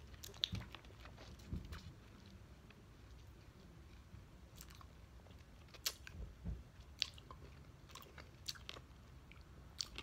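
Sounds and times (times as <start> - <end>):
chewing candy: 0.0 - 6.2, 6.8 - 10.0.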